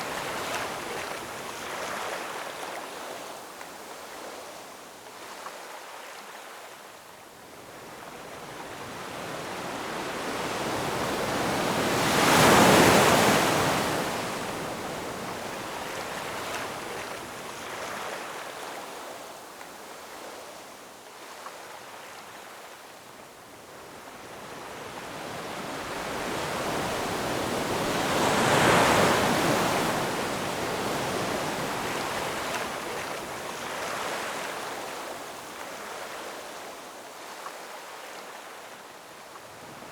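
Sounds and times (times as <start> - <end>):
steady hiss of surf: 0.0 - 5.4, 6.2 - 39.9
ocean waves crashing: 25.8 - 34.9.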